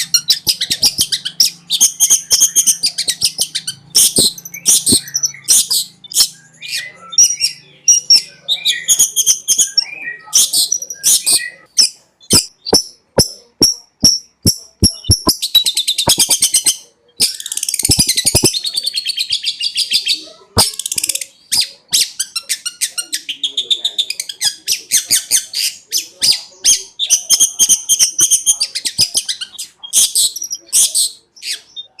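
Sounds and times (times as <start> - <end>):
bird singing sharp chirps: 0.0 - 19.1
harsh buzzy bird rattle: 17.2 - 18.6.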